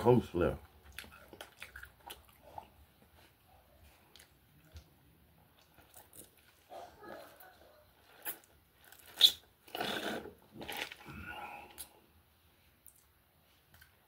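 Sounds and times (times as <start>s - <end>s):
sipping through a straw: 8.2s - 12.0s.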